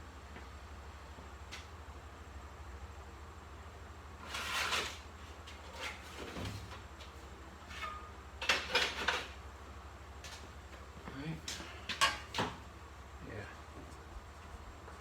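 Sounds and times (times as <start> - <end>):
steady low hum: 9.2 - 15.0.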